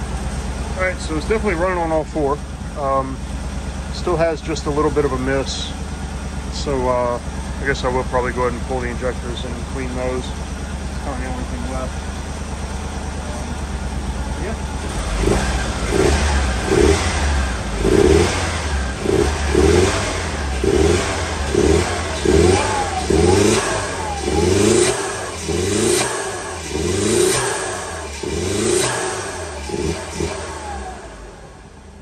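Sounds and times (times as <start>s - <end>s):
car engine revving in blips: 7.2s - 32.0s.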